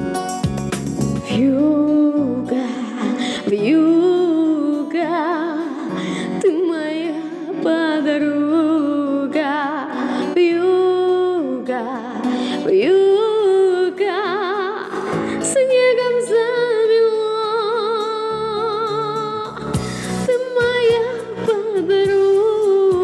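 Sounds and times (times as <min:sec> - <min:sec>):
instrumental accompaniment: 0:00.0 - 0:23.0
woman singing with vibrato: 0:01.3 - 0:23.0.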